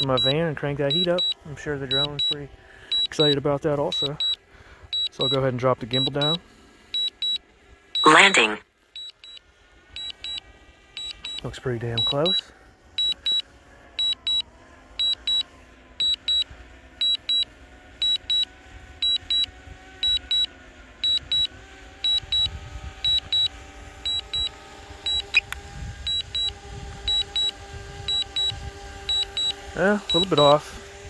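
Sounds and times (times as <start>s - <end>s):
drone propeller whine: 0.0s - 3.0s, 10.0s - 31.0s
remote controller beeps: 0.0s - 4.4s, 5.0s - 6.4s, 7.0s - 7.4s, 8.0s - 9.4s, 10.0s - 10.4s, 11.0s - 12.4s, 13.0s - 13.4s, 14.0s - 14.4s, 15.0s - 15.4s, 16.0s - 16.4s, 17.0s - 17.4s, 18.0s - 21.5s, 22.1s - 22.5s, 23.1s - 24.5s, 25.1s - 25.5s, 26.1s - 27.5s, 28.1s - 30.6s.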